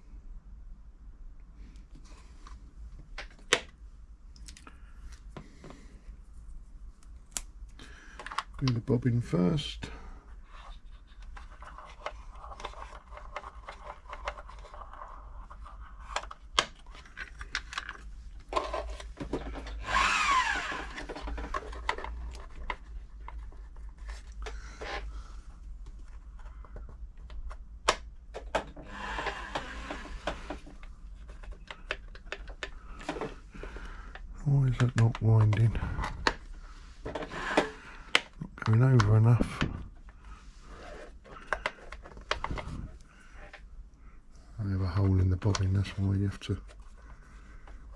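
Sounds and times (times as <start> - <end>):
sewing machine whir: 19.6 - 21.5, 28.8 - 30.6.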